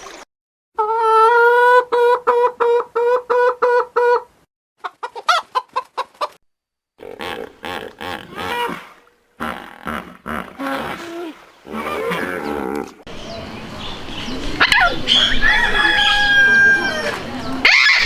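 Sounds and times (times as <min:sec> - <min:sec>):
chicken clucking: 0:01.6 - 0:06.4, 0:13.1 - 0:18.0
quick high animal calls: 0:14.6 - 0:18.0.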